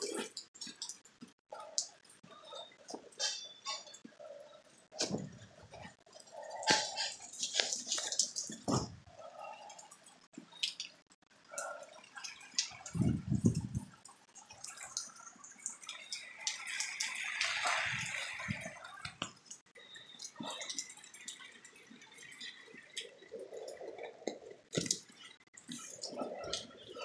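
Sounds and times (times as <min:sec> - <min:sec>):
drops dripping and tapping: 0:00.0 - 0:27.0.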